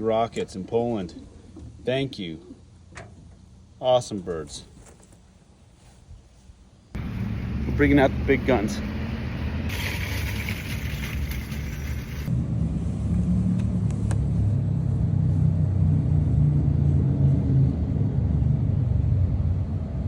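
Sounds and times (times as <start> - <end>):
low steady rumble: 5.4 - 20.0
hum: 7.0 - 17.0.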